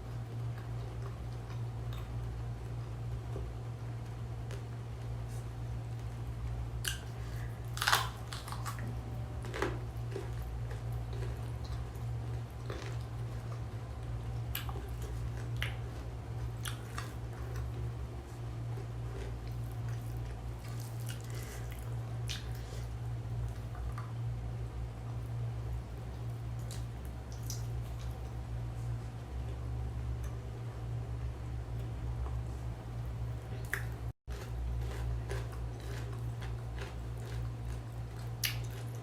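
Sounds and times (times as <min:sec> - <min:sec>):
steady low hum: 0:00.0 - 0:39.0
chewing and mouth smacks: 0:00.1 - 0:06.2, 0:06.8 - 0:17.9, 0:18.7 - 0:24.2, 0:26.1 - 0:28.4, 0:33.5 - 0:39.0.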